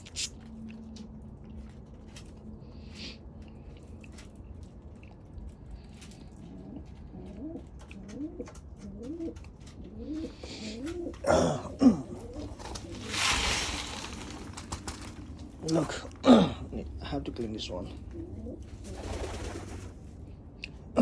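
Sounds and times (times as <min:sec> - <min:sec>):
pigeon cooing: 0:06.0 - 0:16.6, 0:17.7 - 0:20.1.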